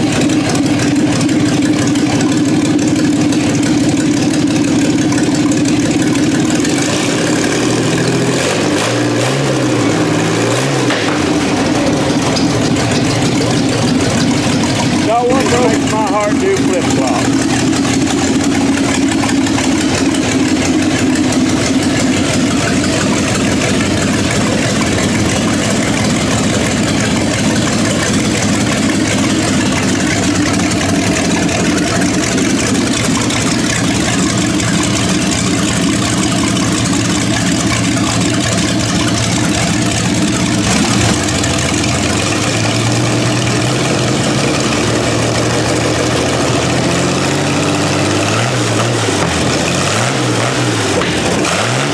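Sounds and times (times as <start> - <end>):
engine running steadily: 0.0 - 51.9.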